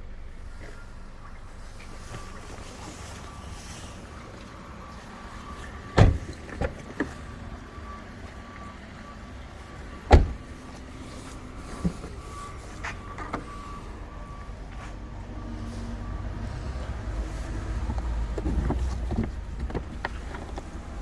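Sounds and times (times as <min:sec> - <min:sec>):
car doors shutting: 0:05.6 - 0:07.2, 0:09.9 - 0:10.9, 0:11.5 - 0:13.9, 0:17.3 - 0:21.0.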